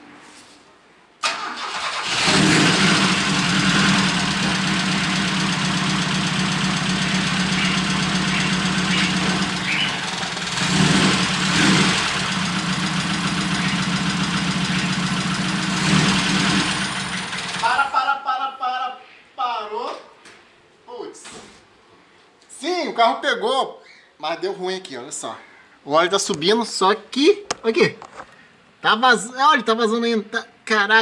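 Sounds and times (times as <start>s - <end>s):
car engine starting and running: 1.2s - 17.8s.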